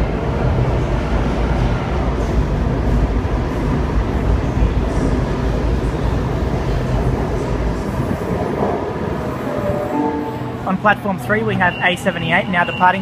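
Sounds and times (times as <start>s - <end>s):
electric train pulling out: 8.4s - 11.8s.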